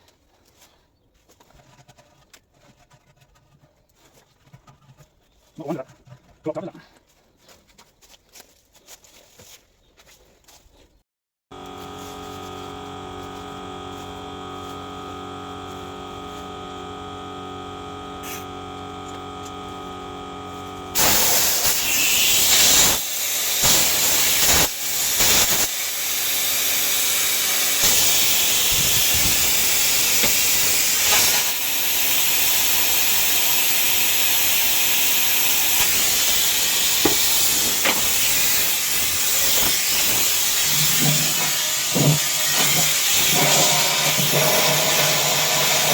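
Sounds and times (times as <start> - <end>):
pressure washer humming: 11.5 - 45.9
water jet spraying into tank: 11.8 - 45.9.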